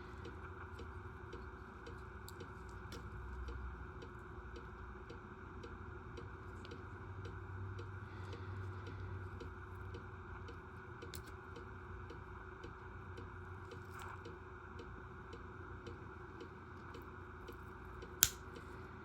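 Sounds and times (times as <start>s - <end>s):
steady low hum: 0.0s - 19.0s
sharp click: 18.2s - 18.4s.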